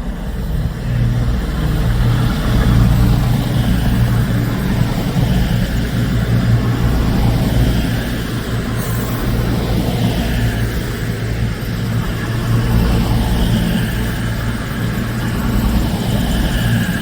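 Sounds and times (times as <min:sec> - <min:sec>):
diesel train engine droning: 0:00.0 - 0:17.0.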